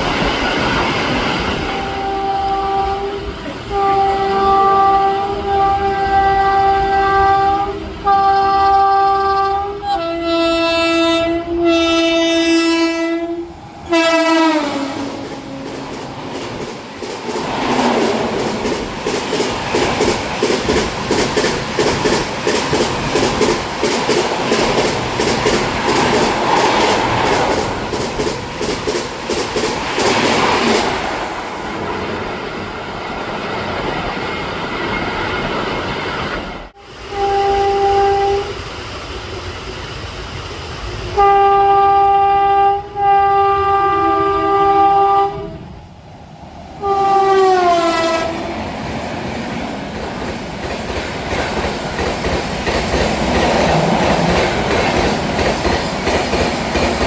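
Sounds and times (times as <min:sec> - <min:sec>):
train horn: 0:01.5 - 0:15.9, 0:36.8 - 0:38.6, 0:41.2 - 0:45.8, 0:46.8 - 0:48.5
train wheels clattering: 0:13.6 - 0:36.6, 0:48.0 - 0:57.0.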